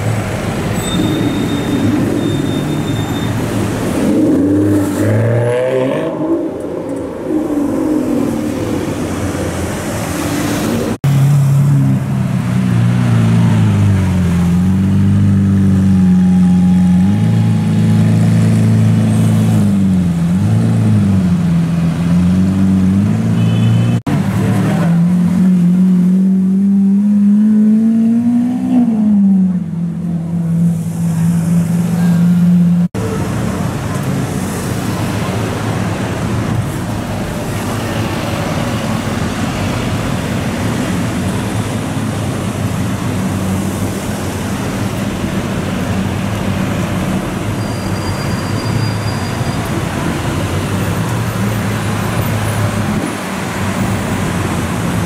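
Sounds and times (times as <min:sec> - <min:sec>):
street traffic noise: 0:00.0 - 0:55.0.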